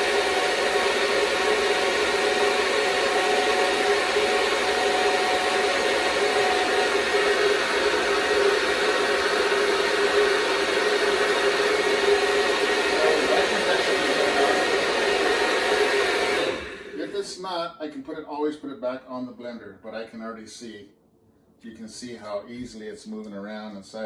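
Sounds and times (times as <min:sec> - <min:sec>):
blender motor whirring: 0:00.0 - 0:17.1.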